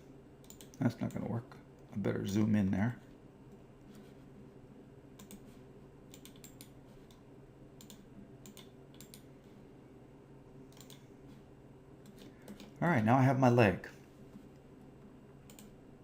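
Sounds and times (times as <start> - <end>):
keyboard and mouse clicks: 0.4 - 1.2, 5.2 - 5.5, 6.1 - 7.2, 7.8 - 9.3, 10.7 - 11.1, 12.0 - 12.8, 15.4 - 15.8.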